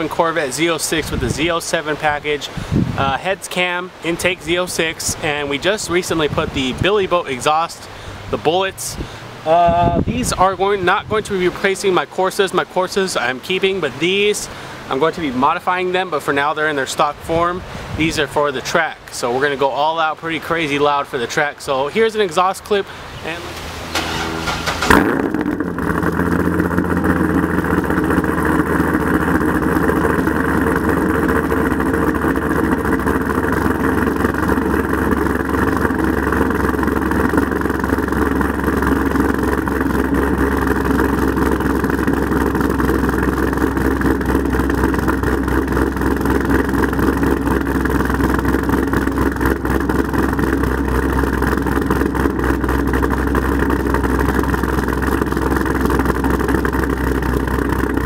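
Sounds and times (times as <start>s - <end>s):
car engine idling loudly: 22.8s - 58.0s.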